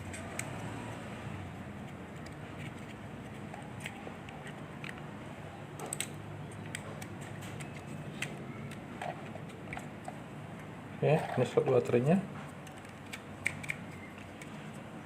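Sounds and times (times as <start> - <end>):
hands handling plastic toy: 1.8 - 5.1.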